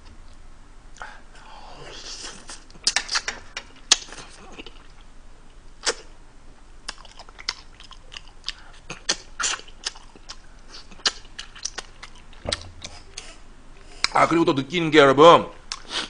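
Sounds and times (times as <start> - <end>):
chewing and lip-smacking: 2.2 - 5.1, 6.8 - 13.3, 15.7 - 16.0.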